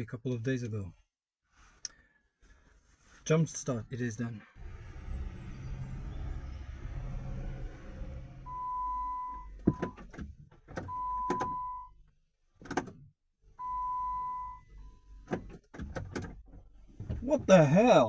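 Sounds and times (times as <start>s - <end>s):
low steady hum: 4.6s - 10.1s
electronic beep: 5.0s - 10.0s.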